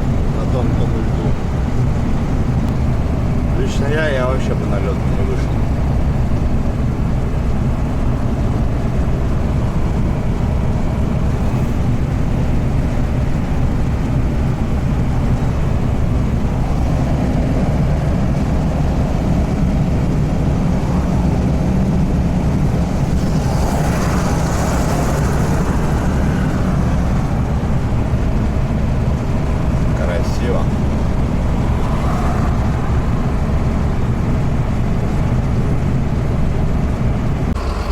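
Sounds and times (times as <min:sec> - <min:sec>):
truck engine rumble from inside cab: 0:00.0 - 0:37.9
rush of higher noise: 0:30.6 - 0:35.6.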